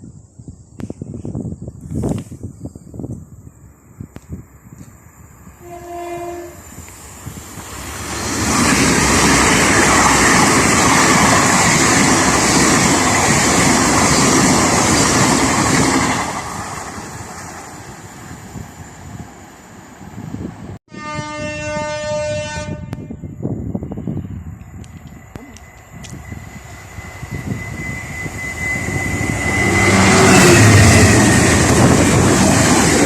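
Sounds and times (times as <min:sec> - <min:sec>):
train passing at speed: 0:02.0 - 0:33.0
train horn: 0:05.6 - 0:06.8, 0:20.9 - 0:23.2, 0:27.5 - 0:31.4.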